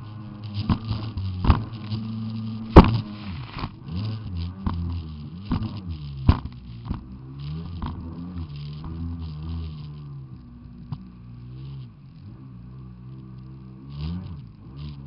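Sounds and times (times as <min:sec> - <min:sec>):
jet ski engine buzzing: 0:00.0 - 0:11.4
sharp thumps: 0:00.6 - 0:03.8.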